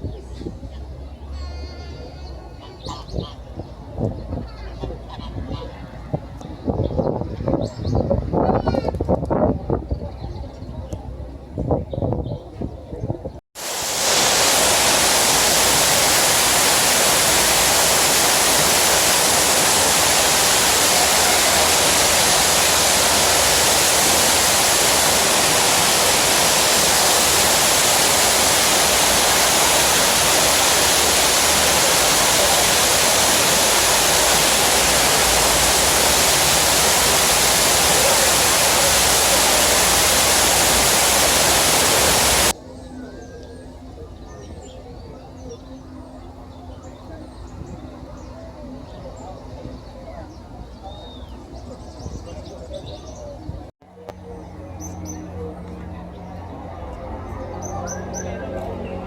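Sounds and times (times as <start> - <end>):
rush of falling water: 13.6 - 42.6.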